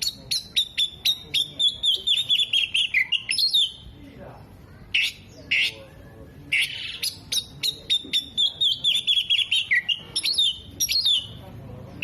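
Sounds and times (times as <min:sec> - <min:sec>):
magpie-robin singing: 0:00.0 - 0:12.0.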